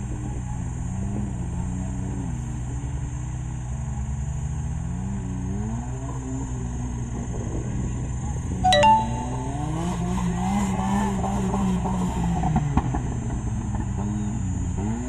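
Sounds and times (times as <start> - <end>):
off-road vehicle engine revving: 10.6 - 15.0.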